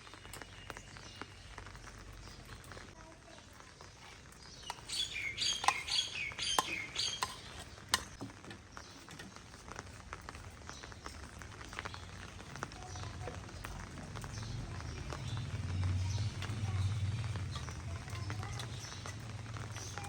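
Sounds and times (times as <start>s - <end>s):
small bird chirping: 4.0s - 8.2s.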